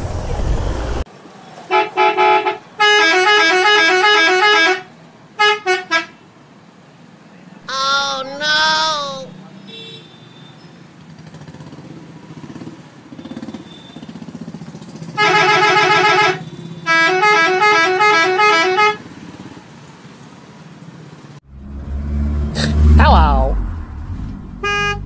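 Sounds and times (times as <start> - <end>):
electronic horn honks: 15.2 - 19.0, 24.6 - 25.0.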